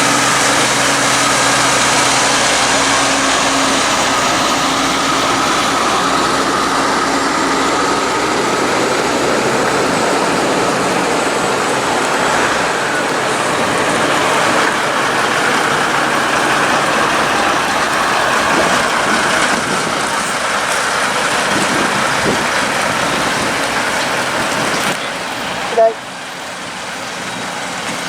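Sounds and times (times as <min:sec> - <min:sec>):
heavy trucks diesel engines: 0:00.0 - 0:28.0.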